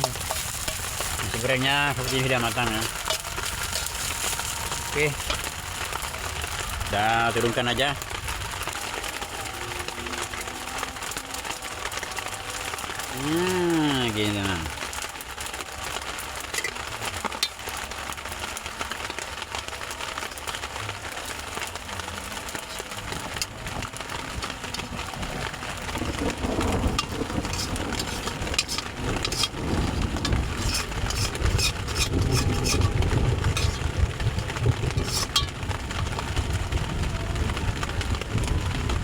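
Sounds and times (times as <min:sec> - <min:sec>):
utensil scraping a cooking pan: 0:00.0 - 0:06.3, 0:22.7 - 0:36.3
outdoor noise: 0:00.0 - 0:39.0.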